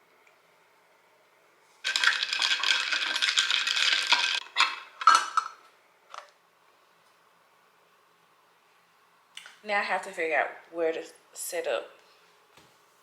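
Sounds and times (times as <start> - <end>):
small hard objects rattling: 1.8 - 5.4
clinks and knocks: 1.9 - 5.6.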